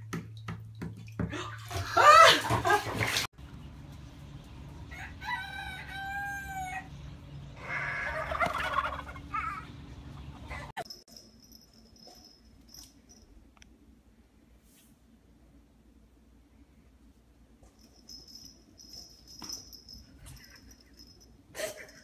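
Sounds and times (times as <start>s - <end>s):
rooster crowing: 4.9s - 6.9s.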